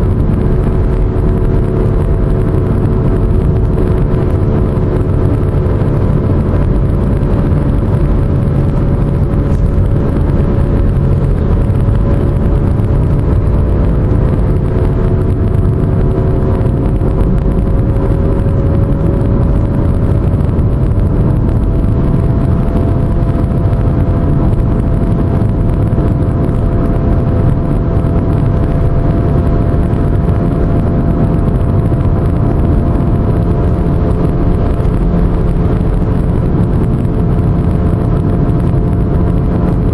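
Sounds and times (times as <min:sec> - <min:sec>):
droning hum rising in pitch: 0:00.0 - 0:39.9
low road rumble: 0:00.0 - 0:39.9.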